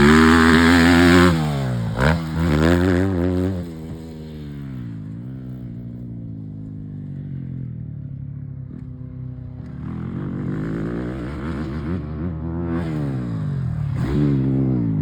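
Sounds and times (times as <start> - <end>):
dirt bike engine revving: 0.0 - 5.2, 9.7 - 15.0.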